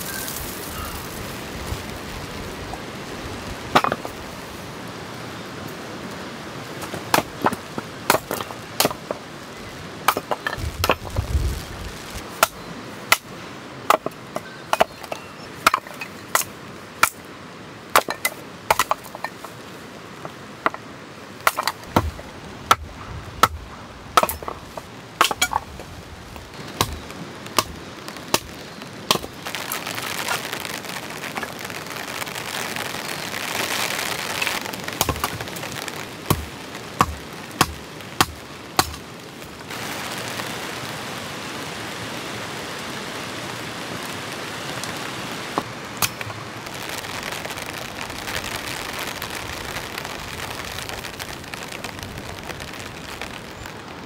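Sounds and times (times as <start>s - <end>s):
heavy rain: 0.0s - 54.0s
firewood being chopped: 3.7s - 4.2s, 6.8s - 9.3s, 10.0s - 11.4s, 12.4s - 13.3s, 13.9s - 17.2s, 17.9s - 19.4s, 21.4s - 25.9s, 26.6s - 29.4s, 34.4s - 39.1s, 45.6s - 46.4s.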